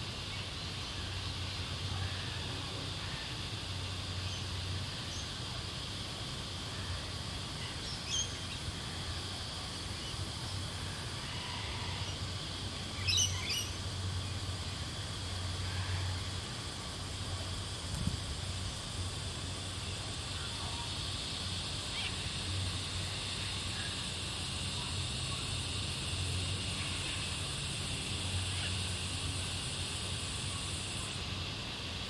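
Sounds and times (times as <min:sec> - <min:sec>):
high insect drone: 0:00.0 - 0:32.0
faint bird chirps: 0:13.0 - 0:13.8.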